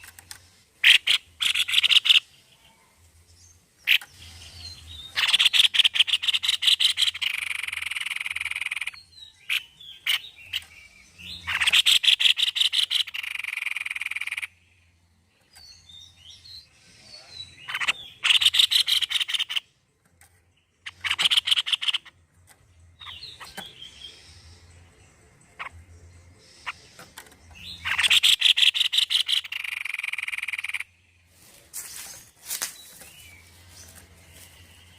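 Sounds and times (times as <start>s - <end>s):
bird fast rattling calls: 0.8s - 2.2s, 5.2s - 10.3s, 11.5s - 14.6s, 17.7s - 19.6s, 20.8s - 22.1s, 27.8s - 30.9s.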